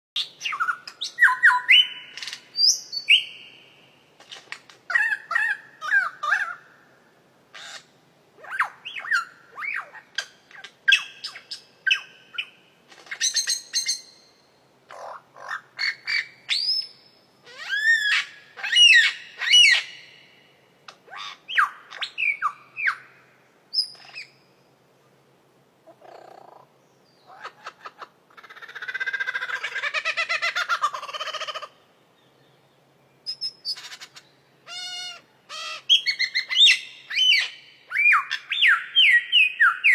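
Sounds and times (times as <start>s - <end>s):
bird whistling and chirping: 0.2s - 3.5s, 15.8s - 20.1s, 35.6s - 39.9s.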